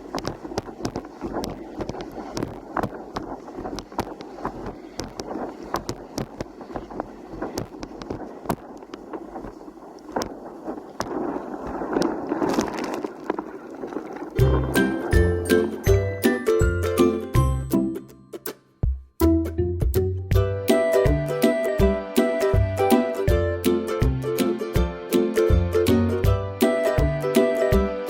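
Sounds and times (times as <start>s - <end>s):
choppy water slapping: 0.0s - 16.4s
wind buffeting microphone: 0.0s - 16.8s.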